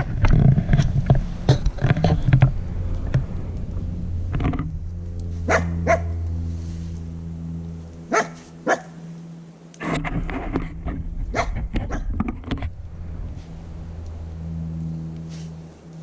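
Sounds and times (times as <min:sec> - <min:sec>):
dog barking: 0:05.5 - 0:06.1, 0:08.1 - 0:09.0, 0:11.3 - 0:12.1.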